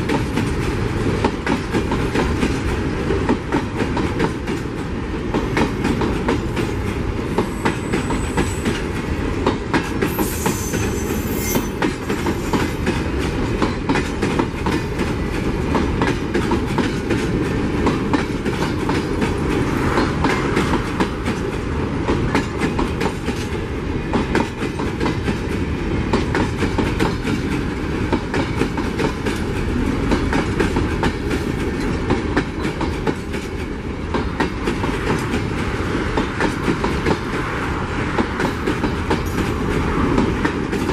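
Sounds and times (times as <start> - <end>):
freight train wheels clacking: 0.0 - 40.9
train rumble: 0.0 - 40.9
high-pitched wheel squeal: 10.1 - 12.8.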